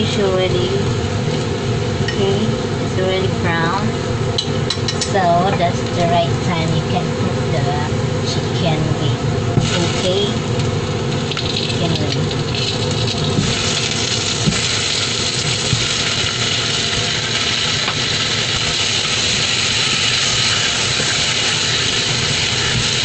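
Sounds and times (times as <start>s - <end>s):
chicken sizzling in hot oil: 9.6s - 23.0s.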